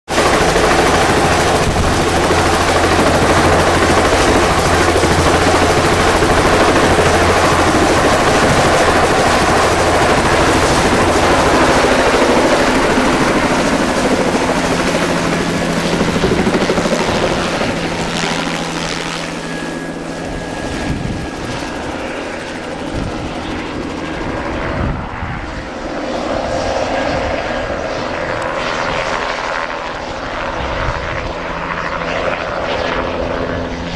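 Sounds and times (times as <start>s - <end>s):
helicopter rotor drone: 0.1s - 33.9s.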